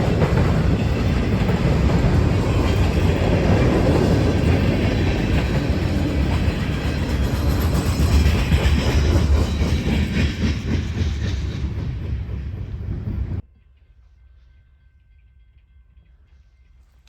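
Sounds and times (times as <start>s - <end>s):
clickety-clack over rail joints: 0.0s - 13.4s
wheels rumbling on rail: 0.0s - 13.4s.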